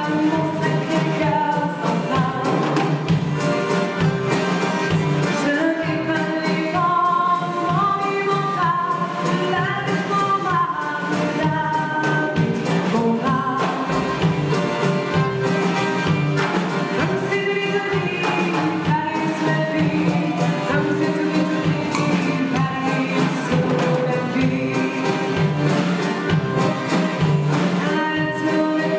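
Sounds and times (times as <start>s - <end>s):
person singing: 0.0s - 3.2s, 5.3s - 14.2s, 16.9s - 26.3s, 27.4s - 28.9s
instrumental accompaniment with beat: 0.0s - 28.9s.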